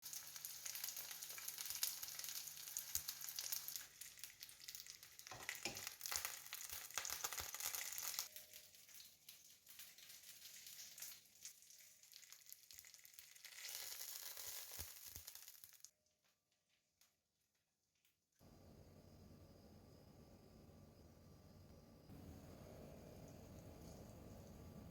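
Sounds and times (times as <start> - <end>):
meat sizzling in a frying pan: 0.0 - 15.9.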